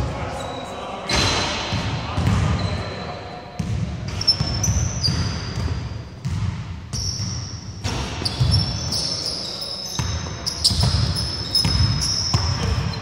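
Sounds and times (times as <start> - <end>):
sneakers squeaking on court: 0.4 - 13.0
basketball bouncing on wooden floor: 3.6 - 8.7, 10.0 - 13.0.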